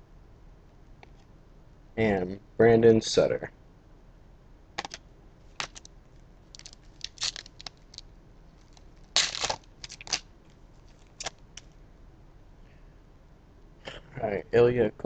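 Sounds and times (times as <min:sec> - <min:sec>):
foil wrapper crinkling and tearing: 0:05.6 - 0:11.7.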